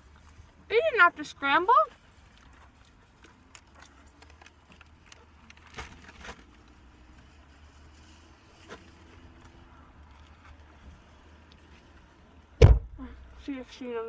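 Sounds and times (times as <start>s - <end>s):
soft clicks and crackles: 1.9s - 12.6s
person chewing food: 2.2s - 5.6s
low steady hum: 9.0s - 14.0s.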